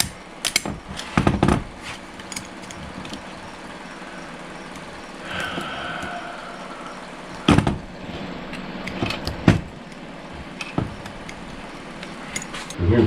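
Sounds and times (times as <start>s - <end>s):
workshop background noise: 0.0s - 12.9s
metal parts clinking and knocking: 2.2s - 3.3s, 8.5s - 12.8s.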